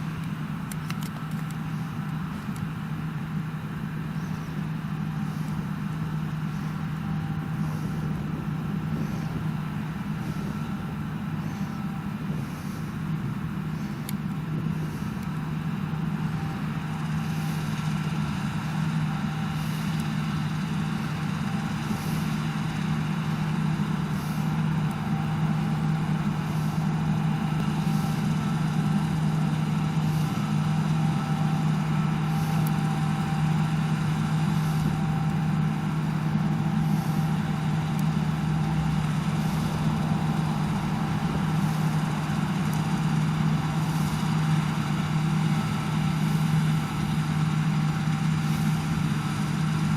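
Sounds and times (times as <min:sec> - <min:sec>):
heavy machinery engine drone: 0:00.0 - 0:49.9
high whine: 0:00.0 - 0:49.9
faint light clicks: 0:00.2 - 0:02.7.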